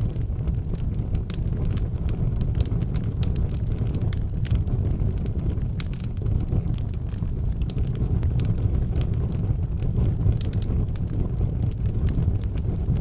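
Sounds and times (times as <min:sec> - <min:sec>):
fire crackles and pops: 0:00.0 - 0:13.0
low rumble of flames: 0:00.0 - 0:13.0.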